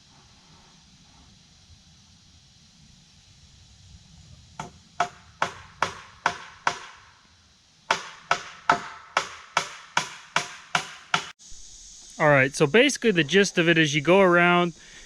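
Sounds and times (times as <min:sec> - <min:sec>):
hammer driving nails into wood: 0:07.9 - 0:11.3.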